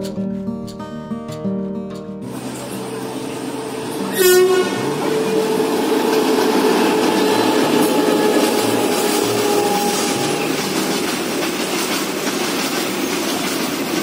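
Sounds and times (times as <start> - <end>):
short sharp horn blast: 2.3 - 11.6
whining tone: 2.3 - 12.7
train wheels rumbling and clattering: 2.3 - 14.0.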